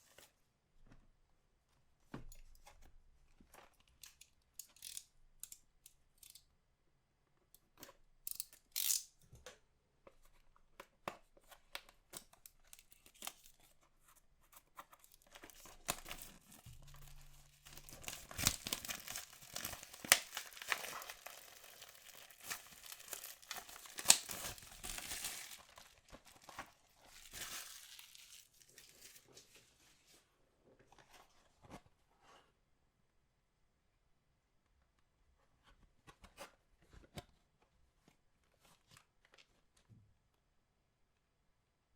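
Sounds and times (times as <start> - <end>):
packaging tearing and crinkling: 15.0 - 29.3.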